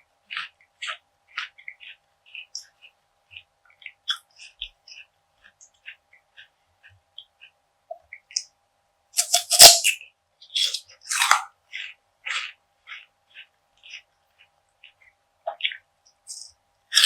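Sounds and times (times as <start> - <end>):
crunchy biting and chewing: 0.3 - 2.6, 9.2 - 14.1, 14.8 - 17.0.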